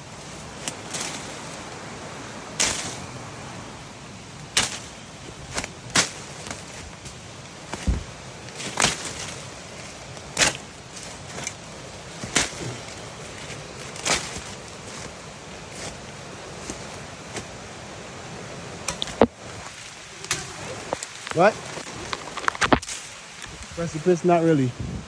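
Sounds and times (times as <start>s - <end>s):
steady hiss: 0.0s - 25.0s
machete chopping through brush: 2.6s - 3.1s, 4.5s - 9.5s, 10.2s - 14.6s.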